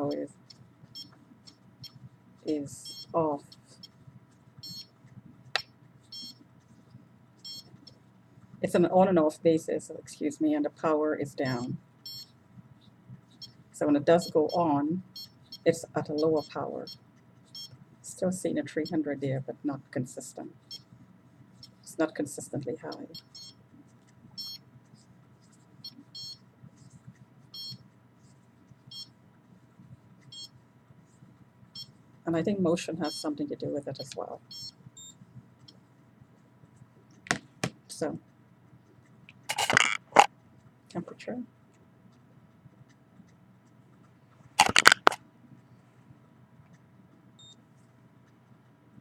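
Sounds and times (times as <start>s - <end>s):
faint steady hum: 0.0s - 49.0s
sharp rustling clicks: 39.3s - 40.3s, 44.6s - 45.2s.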